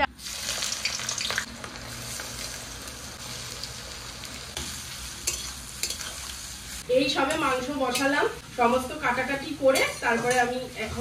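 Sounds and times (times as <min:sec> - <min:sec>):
chicken sizzling in a pan: 0:00.2 - 0:11.0
spatula scraping pan: 0:07.2 - 0:11.0.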